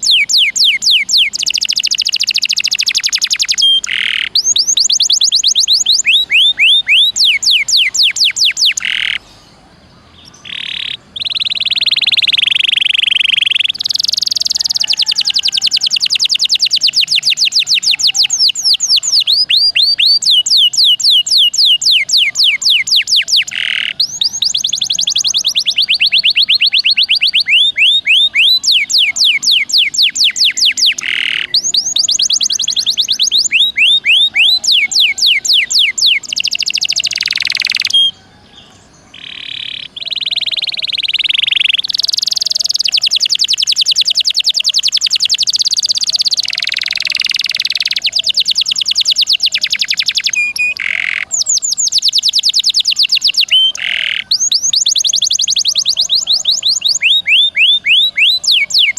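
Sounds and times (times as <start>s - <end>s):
canary singing trills: 0.0s - 58.9s
harsh buzzy bird phrase: 27.4s - 38.1s.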